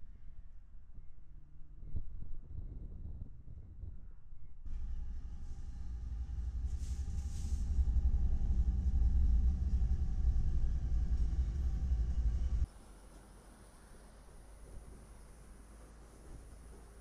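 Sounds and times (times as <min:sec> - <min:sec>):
freight train rumbling past: 0:04.7 - 0:13.1
brief hiss: 0:06.7 - 0:07.8.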